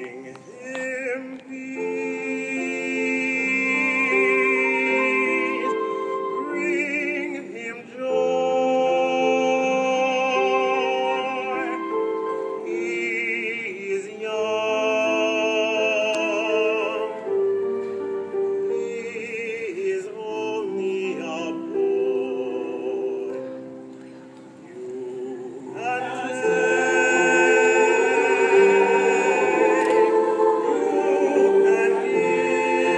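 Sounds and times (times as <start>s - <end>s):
classical singing with vibrato: 0.0s - 32.9s
sustained accompanying chords: 25.0s - 32.9s.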